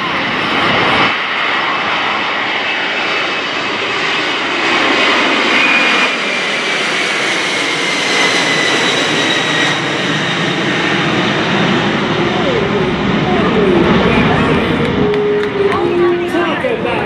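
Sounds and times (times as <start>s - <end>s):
jet engines running loudly: 0.0s - 17.0s
high fan whine: 10.6s - 17.0s.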